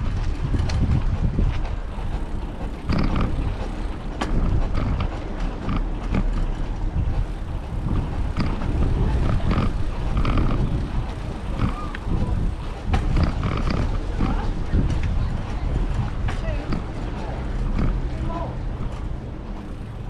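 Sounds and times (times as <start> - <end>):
bicycle clicks and rattles: 0.0 - 20.0
wind buffeting microphone: 0.0 - 20.0.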